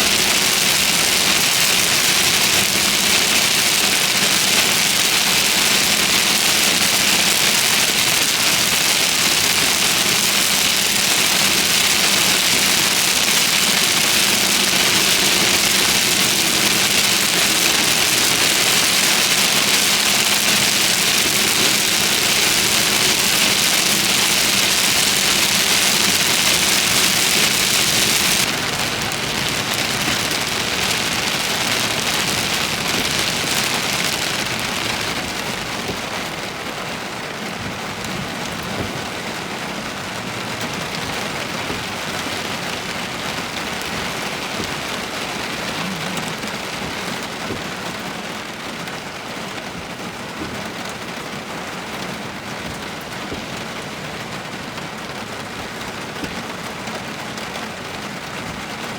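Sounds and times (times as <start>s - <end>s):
low vehicle hum: 0.0s - 37.0s
heavy rain on a car: 0.0s - 58.9s.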